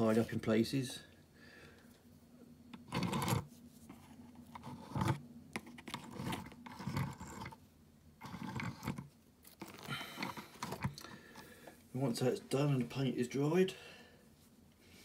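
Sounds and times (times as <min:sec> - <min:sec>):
small mechanical clicks and scrapes: 0:02.8 - 0:03.5, 0:04.5 - 0:07.6, 0:08.2 - 0:11.5.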